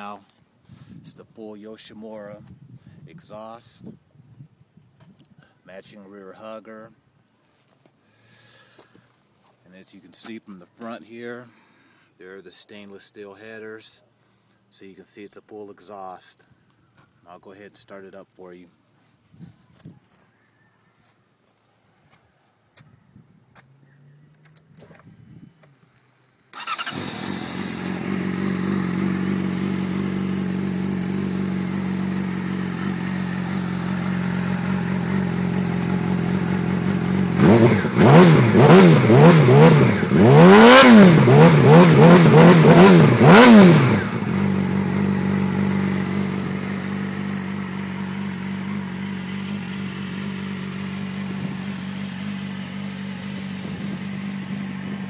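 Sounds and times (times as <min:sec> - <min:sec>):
motorcycle engine idling and revving: 0:21.5 - 0:55.0.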